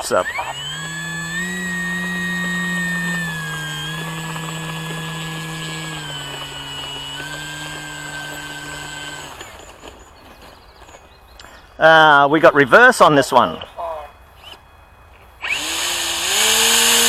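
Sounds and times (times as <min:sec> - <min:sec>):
model plane electric motor whine: 0:00.0 - 0:10.4, 0:15.4 - 0:17.0.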